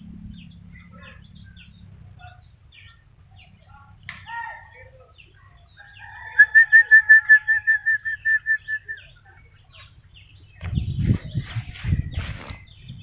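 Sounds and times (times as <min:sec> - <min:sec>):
low thumping and rustling: 0:10.6 - 0:13.0.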